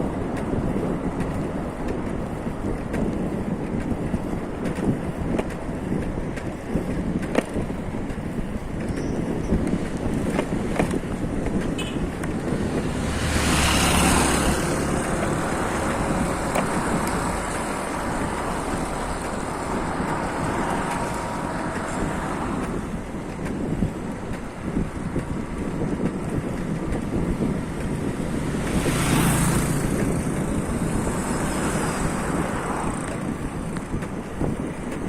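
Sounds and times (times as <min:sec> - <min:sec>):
traffic noise: 0:00.0 - 0:35.0
wind on microphone: 0:00.0 - 0:35.0.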